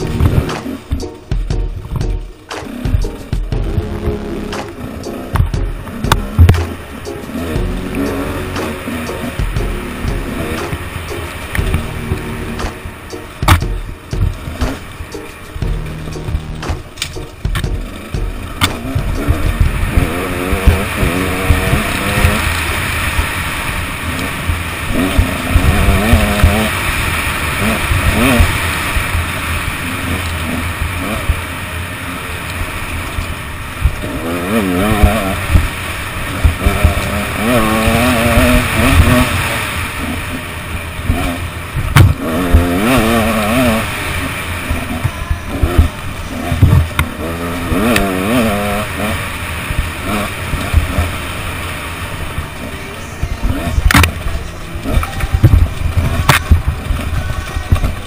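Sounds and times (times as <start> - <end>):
motorcycle engine revving: 0.0 - 58.0
knocks from bumps: 15.6 - 22.3, 41.9 - 42.6.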